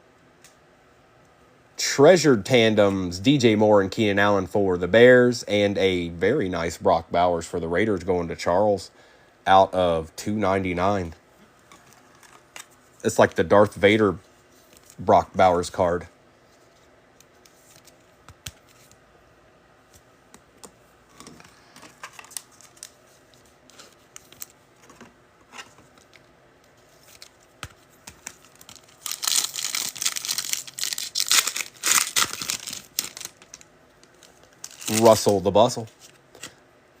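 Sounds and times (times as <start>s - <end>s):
foil wrapper tearing and crinkling: 28.1s - 35.4s.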